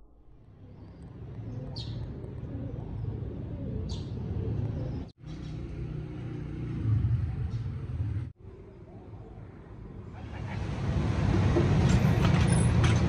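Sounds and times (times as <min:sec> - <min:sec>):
bird chirps: 0:00.6 - 0:05.6.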